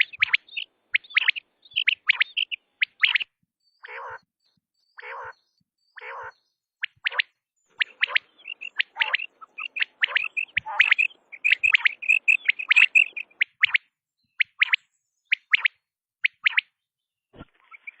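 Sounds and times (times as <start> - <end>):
quail calling: 0.0 - 4.2, 5.0 - 5.4, 6.0 - 13.8.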